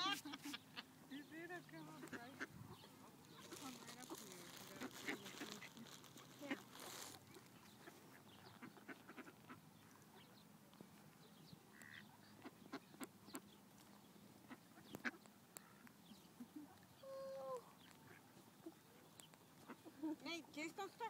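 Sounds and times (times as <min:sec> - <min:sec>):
faint scattered clicks: 0:19.0 - 0:20.4.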